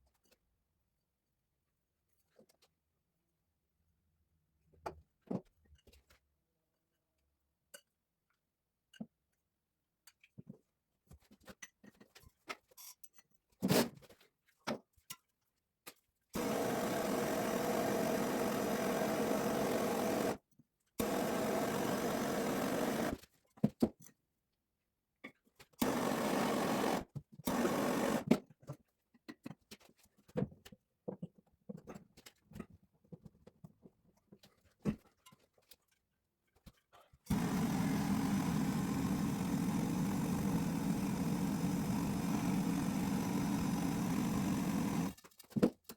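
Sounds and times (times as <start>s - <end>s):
handheld power tool motor: 16.4s - 20.4s, 21.0s - 23.2s, 25.8s - 28.4s, 37.3s - 45.3s.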